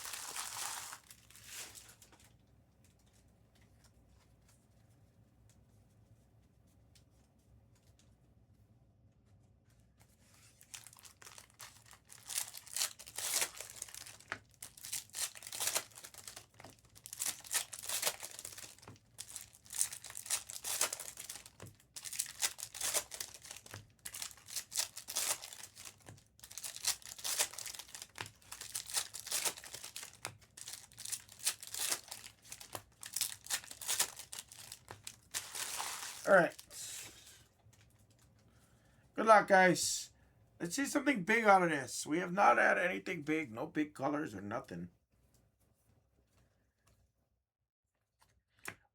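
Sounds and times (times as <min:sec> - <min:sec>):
card wrappers crinkling and tearing: 0:00.0 - 0:02.0, 0:10.3 - 0:37.0.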